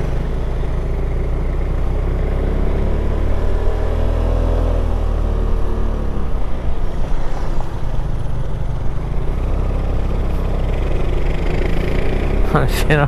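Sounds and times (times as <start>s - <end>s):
motorcycle engine running: 0.0s - 4.0s, 8.1s - 13.0s.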